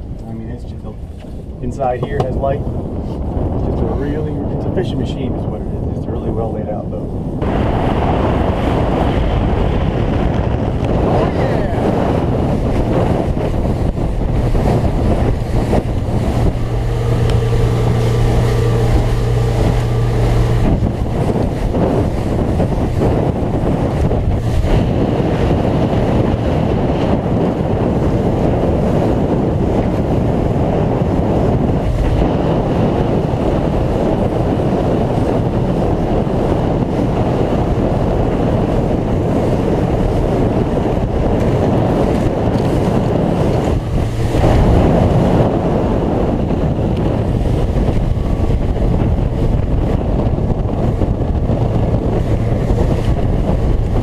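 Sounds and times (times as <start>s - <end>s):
water rushing along hull: 0.0s - 54.0s
wind noise on microphone: 0.0s - 54.0s
outboard motor running: 7.1s - 54.0s
hull slamming against wave: 41.5s - 54.0s.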